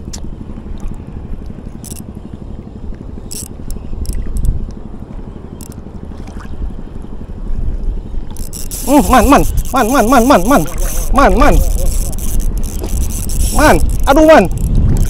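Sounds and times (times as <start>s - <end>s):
fishing reel clicks and scrapes: 1.8s - 2.0s, 3.2s - 4.6s, 5.6s - 5.8s, 8.3s - 15.0s
wind on microphone: 7.4s - 15.0s.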